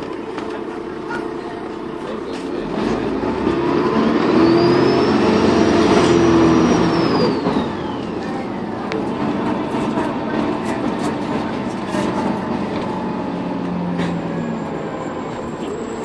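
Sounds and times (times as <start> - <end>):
bus diesel engine accelerating: 0.0 - 16.0
turbocharger whistle: 3.7 - 8.2.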